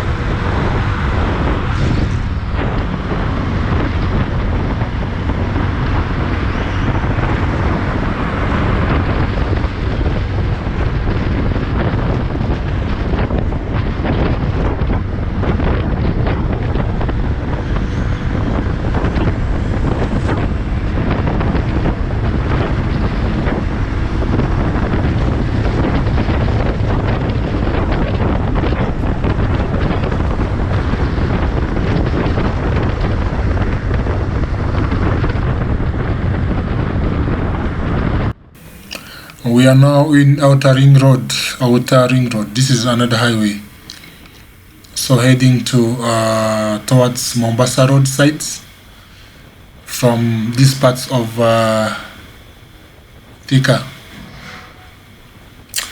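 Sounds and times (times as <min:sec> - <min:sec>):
engine and road hum: 0:00.0 - 0:39.5
wind rushing over microphone: 0:00.0 - 0:55.9.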